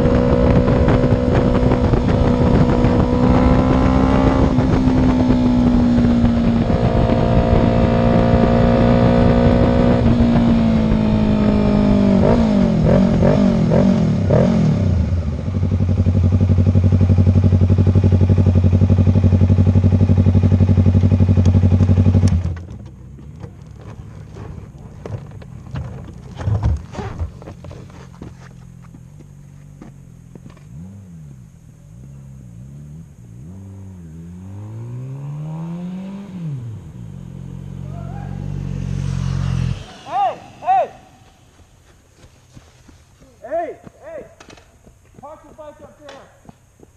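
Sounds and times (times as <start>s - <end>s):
motorcycle engine running: 0.0s - 46.9s
light knocks and scrapes: 23.2s - 29.7s.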